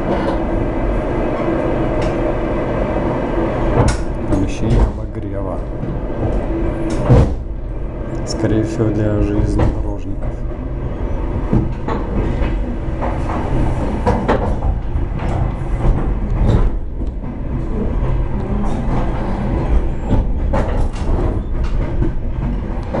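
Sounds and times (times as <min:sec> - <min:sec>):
train rumble inside carriage: 0:00.0 - 0:23.0
wheel clacks and knocks: 0:08.3 - 0:23.0.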